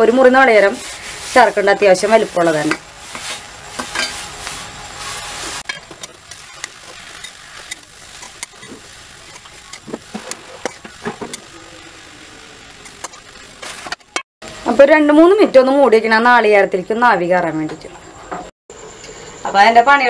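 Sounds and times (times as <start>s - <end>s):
food sizzling in a frying pan: 0.0s - 14.8s
steel spatula scraping a pan: 0.5s - 11.5s.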